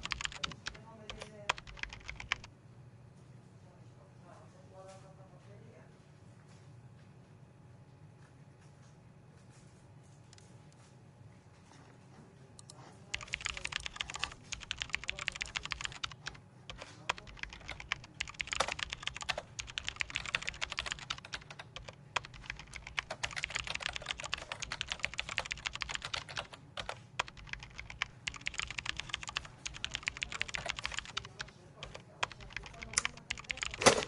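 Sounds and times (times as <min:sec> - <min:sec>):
computer keyboard typing: 0:00.0 - 0:02.5, 0:12.6 - 0:34.0
low steady background hum: 0:00.0 - 0:34.0.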